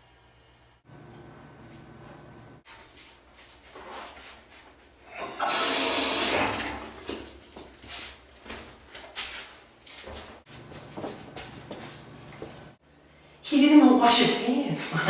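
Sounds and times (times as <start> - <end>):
toilet flushing: 5.0 - 7.8.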